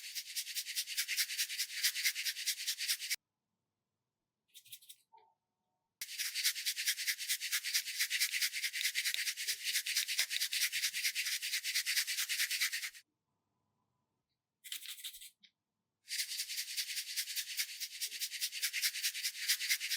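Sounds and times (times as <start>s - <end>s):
quick scrubbing strokes: 0.0s - 3.2s, 6.0s - 13.0s.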